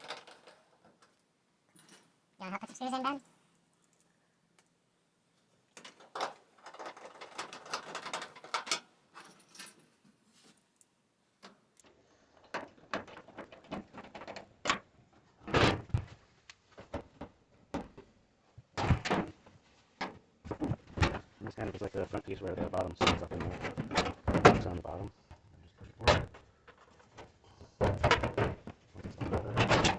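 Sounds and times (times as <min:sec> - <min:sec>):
dryer cabinet parts clattering: 0:00.0 - 0:01.1, 0:05.8 - 0:09.9, 0:11.4 - 0:29.9.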